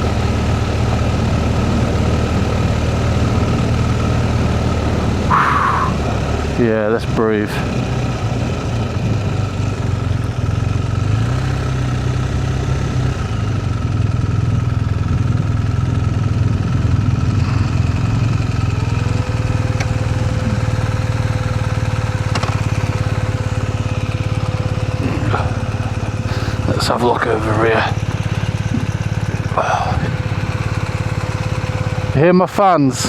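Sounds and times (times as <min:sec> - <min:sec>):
cooling fan whine: 0:00.0 - 0:10.3, 0:16.5 - 0:23.7
motorcycle engine idling: 0:00.0 - 0:33.0.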